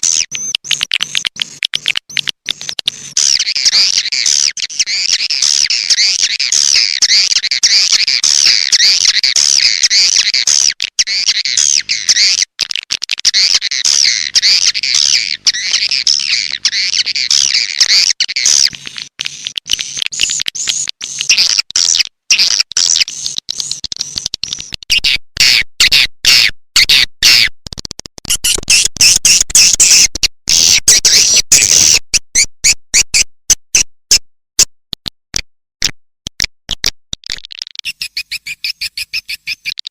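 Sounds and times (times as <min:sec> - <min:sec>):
sharp clicking pulses: 0:00.0 - 0:25.0.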